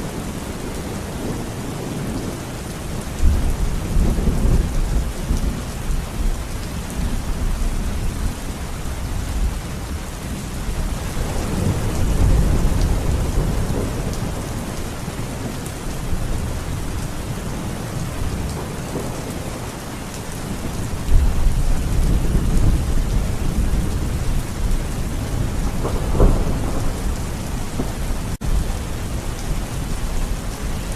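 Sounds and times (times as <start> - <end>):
heavy rain falling: 0.0 - 30.9
thunder rumbling: 20.4 - 30.9
sharp thunder crack: 25.7 - 28.6.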